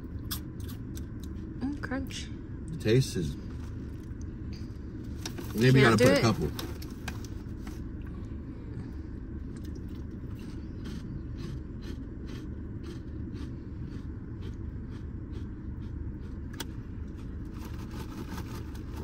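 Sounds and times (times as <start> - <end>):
low rumble: 0.0 - 19.0
crisp crunching chewing: 9.5 - 19.0.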